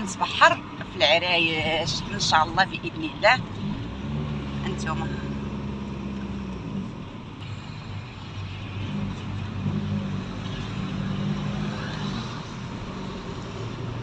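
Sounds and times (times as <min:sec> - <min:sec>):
car engine running: 0:00.0 - 0:11.6
road traffic noise: 0:00.0 - 0:14.0.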